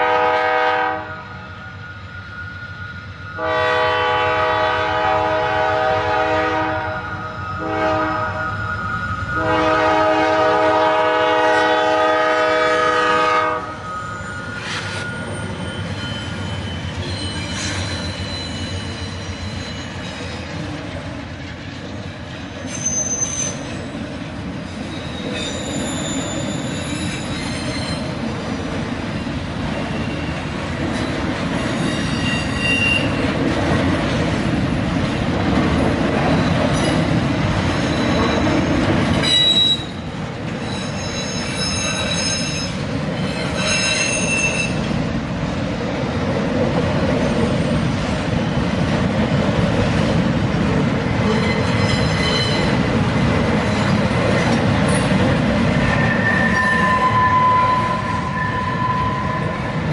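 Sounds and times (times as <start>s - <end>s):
train wheels rumbling on rail: 0.0s - 59.9s
high-pitched wheel squeals: 1.2s - 3.5s, 7.0s - 9.6s, 13.5s - 20.5s, 22.6s - 24.0s, 24.7s - 28.2s, 31.0s - 33.2s, 37.7s - 44.8s, 51.3s - 52.8s, 55.8s - 59.8s.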